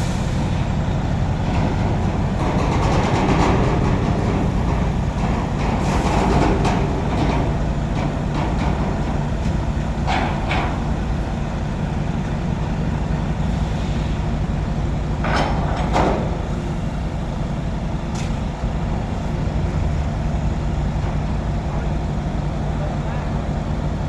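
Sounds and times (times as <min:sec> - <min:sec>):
air brake hiss: 0:00.0 - 0:00.6
diesel truck engine running: 0:00.0 - 0:24.0.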